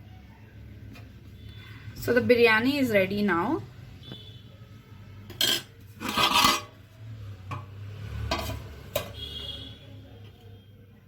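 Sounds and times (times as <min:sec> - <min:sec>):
spoon scraping food in pot: 0:05.3 - 0:06.9, 0:07.5 - 0:09.2.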